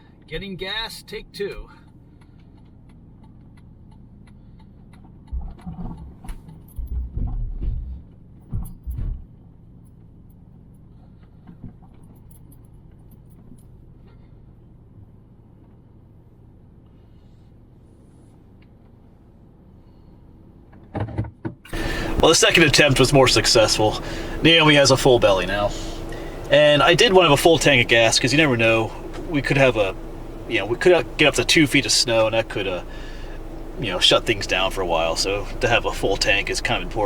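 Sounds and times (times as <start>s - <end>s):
car driving heard from inside: 1.5s - 9.5s, 21.7s - 37.0s.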